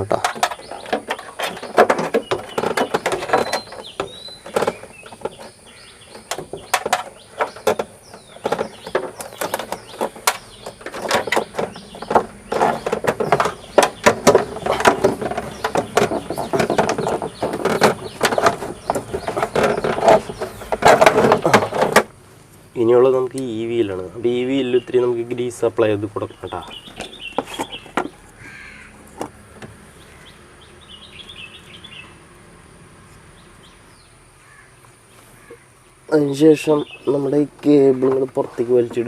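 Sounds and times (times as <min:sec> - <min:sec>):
knocks and clicks of parts: 0:00.0 - 0:22.1
metal and plastic parts rubbing: 0:00.0 - 0:22.2, 0:26.4 - 0:29.8.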